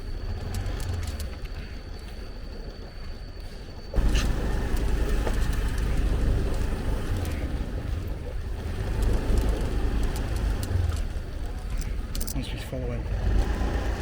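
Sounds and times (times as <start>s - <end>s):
motorbike rumbling: 3.9s - 14.0s.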